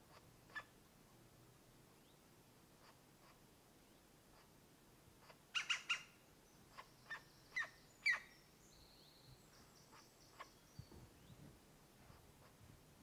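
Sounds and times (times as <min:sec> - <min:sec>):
sharp bird calls: 0:05.6 - 0:08.5, 0:09.6 - 0:11.4.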